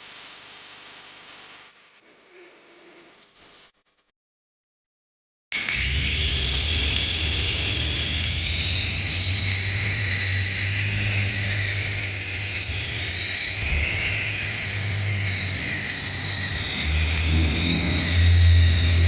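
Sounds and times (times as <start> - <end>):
toy electric motors whining: 5.6 - 19.0.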